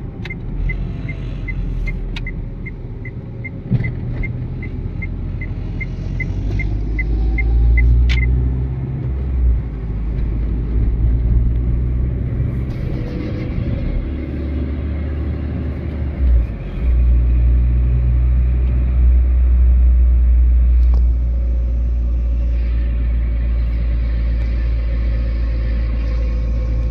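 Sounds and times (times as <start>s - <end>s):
car engine and road rumble: 0.0s - 26.9s
indicator ticking: 0.2s - 8.4s.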